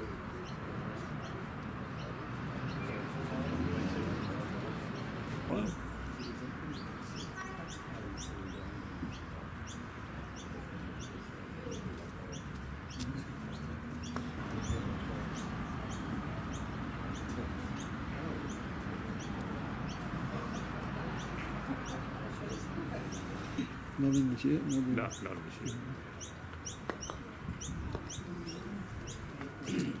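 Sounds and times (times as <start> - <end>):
outdoor background noise: 0.0 - 30.0.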